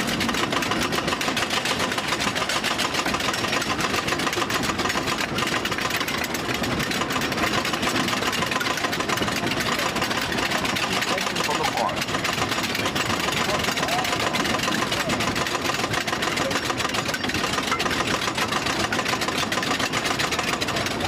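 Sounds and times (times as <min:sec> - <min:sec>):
roller coaster clattering on track: 0:00.0 - 0:21.0
rumbling mechanical noise: 0:00.0 - 0:21.0.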